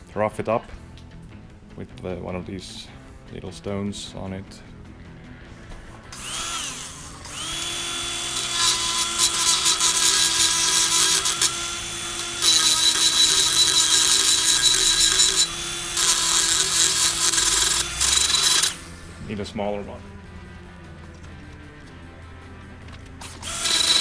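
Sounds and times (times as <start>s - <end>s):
rotary tool grinding metal: 6.1s - 19.2s, 23.0s - 24.0s.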